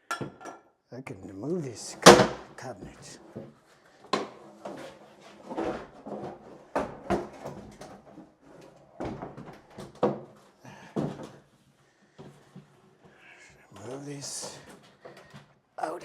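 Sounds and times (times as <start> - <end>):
cabinet scraping: 1.9 - 3.5, 4.1 - 10.3
cabinet knocking and bumping: 2.0 - 2.5, 6.8 - 7.9, 9.0 - 10.4.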